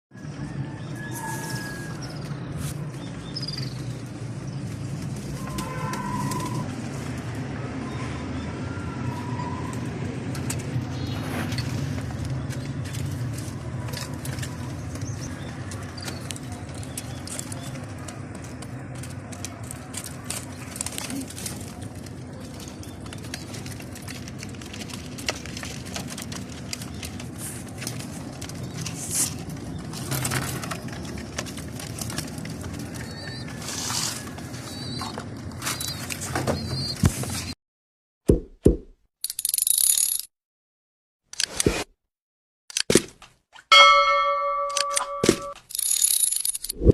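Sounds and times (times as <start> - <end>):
small clicks and scuffs: 9.7 - 37.6
clear high held notes: 43.7 - 45.5.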